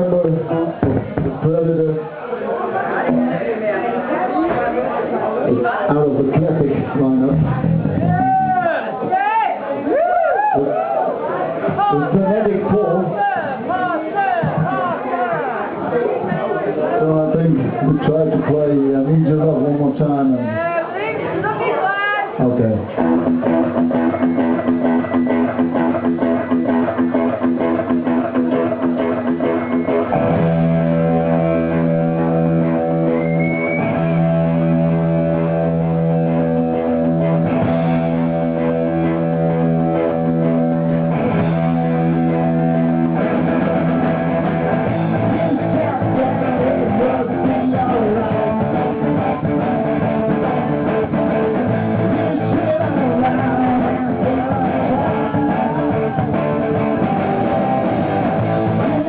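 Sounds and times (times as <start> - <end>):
bass guitar: 0.0 - 2.0, 3.0 - 3.6, 5.5 - 9.2, 22.4 - 59.0
electric guitar: 0.0 - 2.1, 3.0 - 3.6, 6.3 - 9.2, 22.3 - 59.0.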